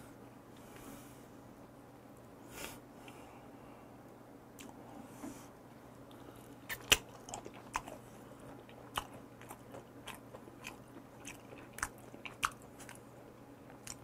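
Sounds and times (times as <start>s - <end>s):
person chewing: 6.1s - 14.0s.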